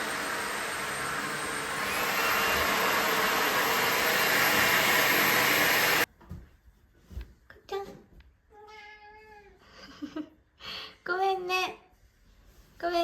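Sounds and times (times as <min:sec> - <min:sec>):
vacuum cleaner running: 0:00.0 - 0:06.1.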